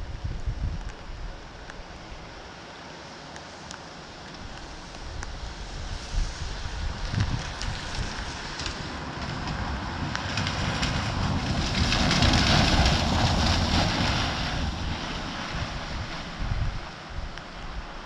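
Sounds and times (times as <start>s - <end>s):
wind buffeting microphone: 0.0s - 1.4s, 4.4s - 18.0s
storm rain: 4.4s - 18.0s.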